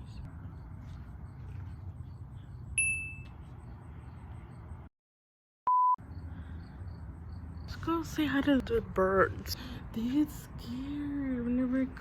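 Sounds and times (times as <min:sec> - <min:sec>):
loud single-pitch beep: 0:05.7 - 0:06.0.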